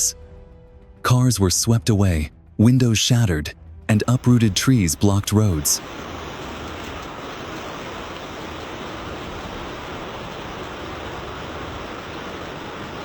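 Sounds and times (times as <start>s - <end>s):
rushing storm noise: 3.9s - 13.0s.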